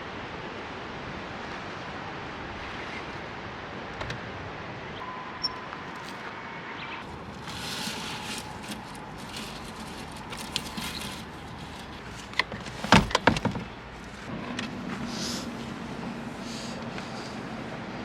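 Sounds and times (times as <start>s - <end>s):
camp gear clicking and knocking: 7.0s - 14.8s.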